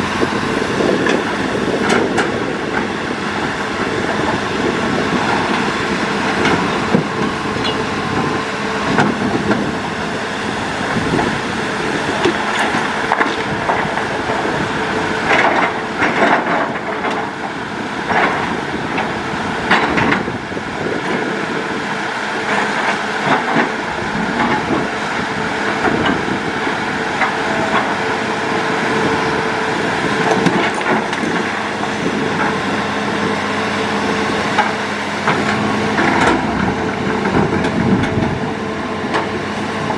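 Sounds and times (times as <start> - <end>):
excavator running: 0.0 - 39.9.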